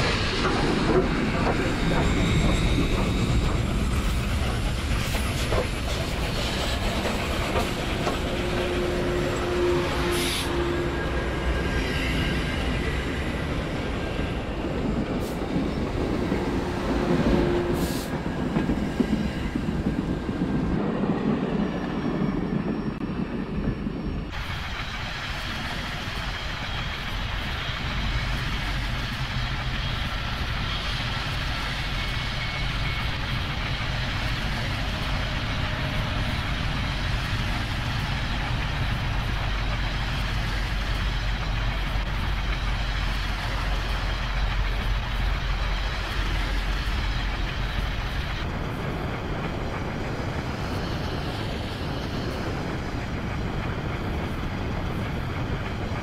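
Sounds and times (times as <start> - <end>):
train wheels clacking on rails: 0.0 - 56.0.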